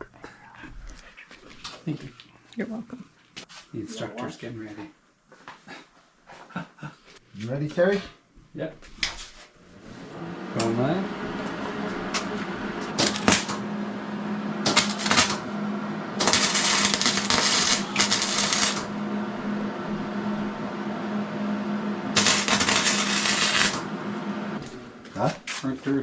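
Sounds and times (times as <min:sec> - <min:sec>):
welder arc crackling and sizzling: 0:09.1 - 0:14.0, 0:14.6 - 0:25.6
steady low hum: 0:09.4 - 0:26.0.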